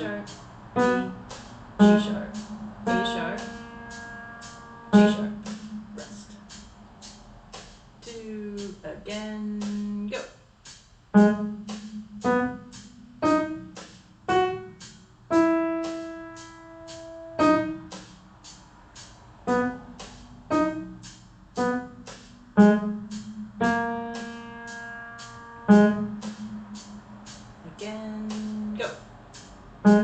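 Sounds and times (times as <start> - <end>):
slow piano melody: 0.0 - 7.0, 11.1 - 18.2, 19.4 - 27.7, 29.8 - 30.0
ticking beat: 0.0 - 30.0.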